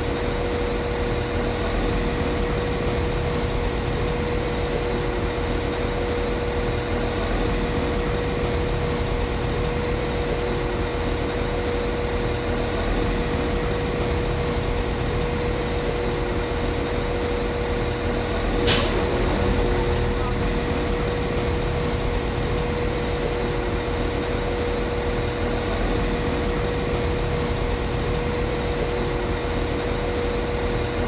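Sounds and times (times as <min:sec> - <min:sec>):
train diesel engine idling: 0:11.3 - 0:29.5
sharp click: 0:18.7 - 0:19.0.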